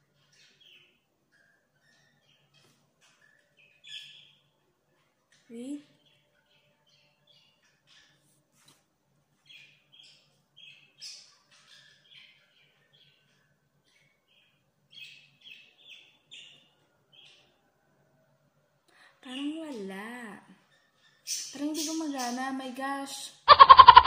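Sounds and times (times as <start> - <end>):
small birds chirping: 0.0 - 17.8, 18.9 - 24.0
faint low hum: 0.0 - 24.0.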